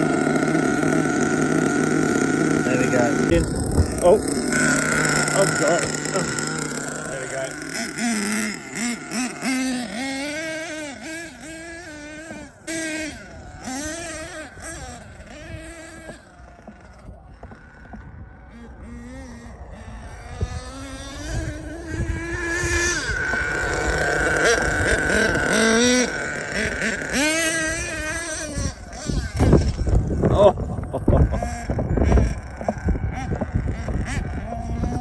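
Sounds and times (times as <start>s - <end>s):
model truck engine revving: 0.0s - 35.0s.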